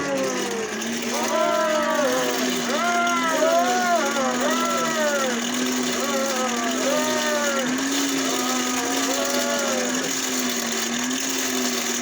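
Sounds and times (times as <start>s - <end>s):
hand-cranked blower whirring: 0.0s - 12.0s.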